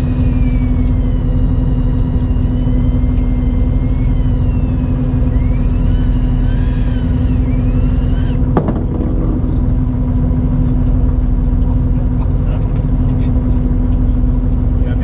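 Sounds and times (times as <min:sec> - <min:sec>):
high sliding whine: 0:00.0 - 0:10.9
boat engine humming: 0:00.0 - 0:15.0
single knock: 0:08.6 - 0:09.2.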